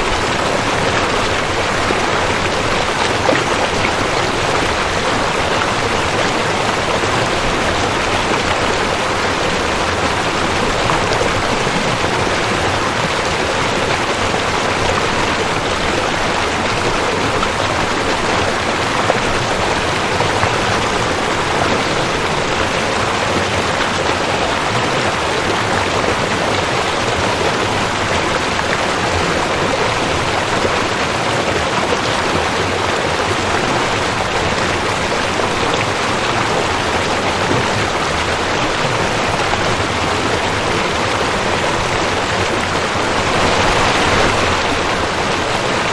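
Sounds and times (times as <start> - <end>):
rushing creek water: 0.0 - 45.9.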